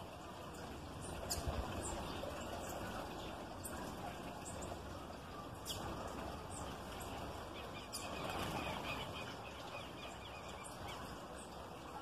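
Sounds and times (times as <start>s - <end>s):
low background noise: 0.0s - 12.0s
small birds chirping: 0.0s - 12.0s.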